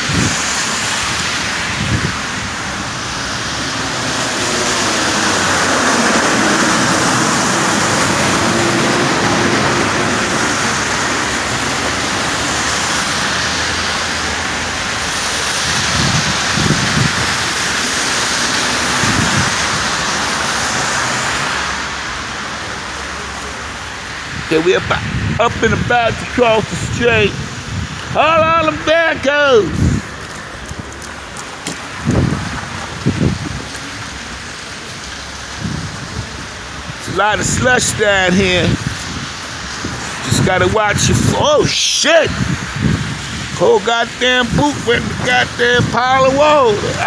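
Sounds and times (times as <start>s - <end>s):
tyres hissing through slush: 0.3s - 24.9s.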